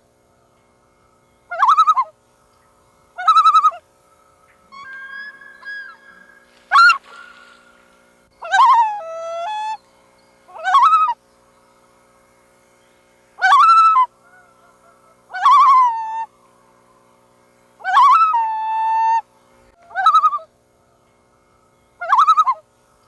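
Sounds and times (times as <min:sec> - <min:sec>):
loons calling: 0:00.0 - 0:12.1, 0:13.3 - 0:22.8
faint steady hum: 0:00.0 - 0:23.0.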